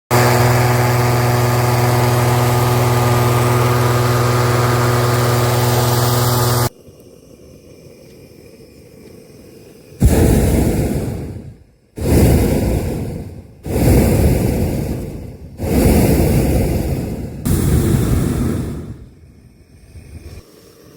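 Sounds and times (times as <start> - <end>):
balloon burner roaring: 0.1 - 6.7, 10.0 - 19.2
petrol engine droning: 0.1 - 6.7.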